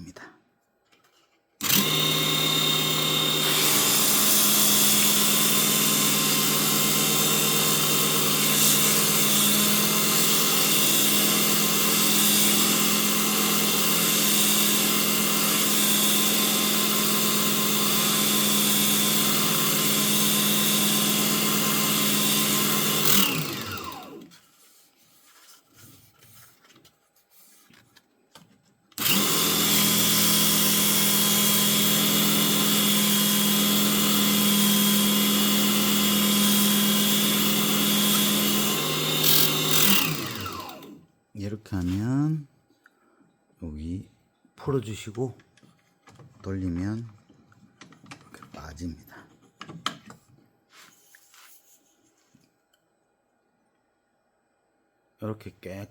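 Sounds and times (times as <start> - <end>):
lathe motor whirring: 1.6 - 24.4, 29.0 - 41.0.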